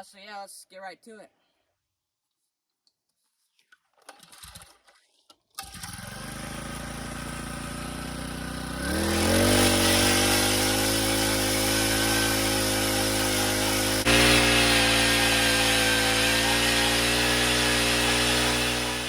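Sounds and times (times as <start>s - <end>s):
ice auger engine revving: 5.6s - 19.0s.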